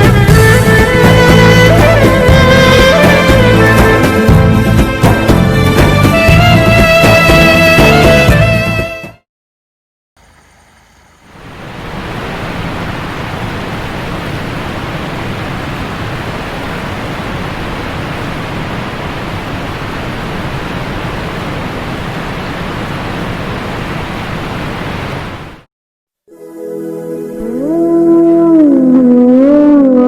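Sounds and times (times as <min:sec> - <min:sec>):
heavy rain: 0:00.0 - 0:07.2, 0:11.3 - 0:25.7.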